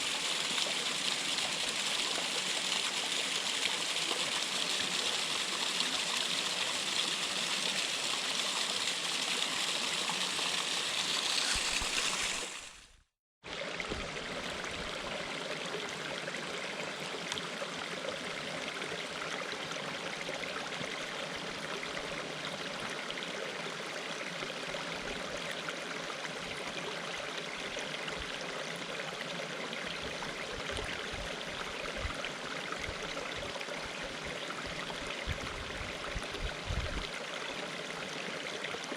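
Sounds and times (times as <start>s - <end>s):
water rushing down a cascade: 0.0s - 12.7s.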